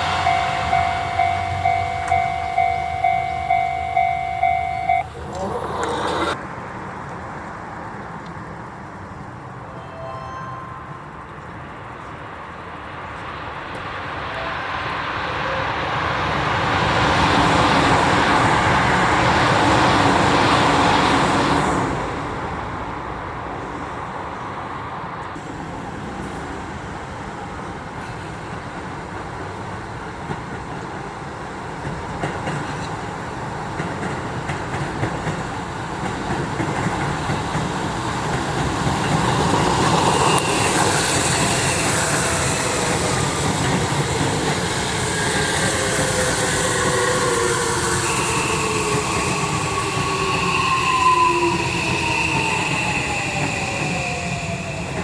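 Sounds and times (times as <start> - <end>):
electric train passing: 0.0 - 55.0
wheels clicking over rail joints: 0.1 - 9.4, 25.3 - 51.0.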